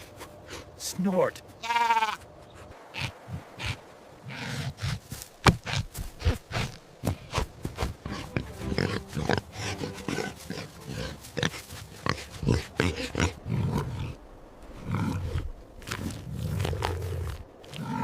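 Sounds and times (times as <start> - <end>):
pig grunting: 8.0 - 15.5, 16.1 - 18.0.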